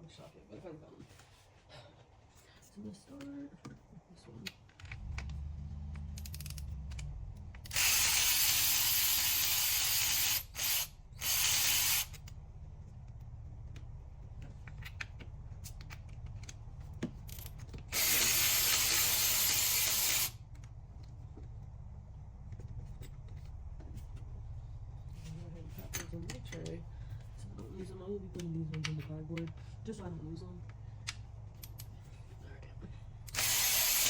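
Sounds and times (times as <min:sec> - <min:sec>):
ratchet wrench clicking: 0:06.0 - 0:12.4, 0:17.2 - 0:20.4, 0:33.2 - 0:34.0.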